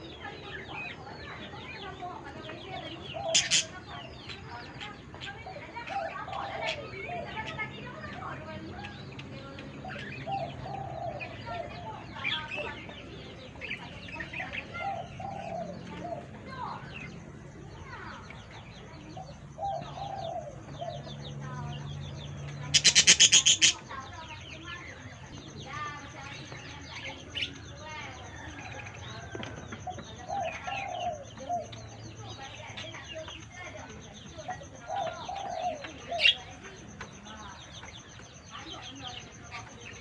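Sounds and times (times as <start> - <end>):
budgerigars chirping and chattering: 0.0 - 40.0
lower bird calls: 9.3 - 40.0.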